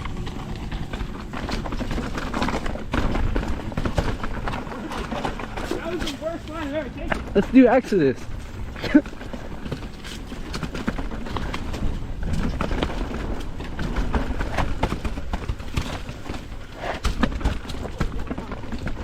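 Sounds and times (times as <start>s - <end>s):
bike rattling and clattering: 0.0s - 19.0s
low wind rumble: 0.0s - 19.0s.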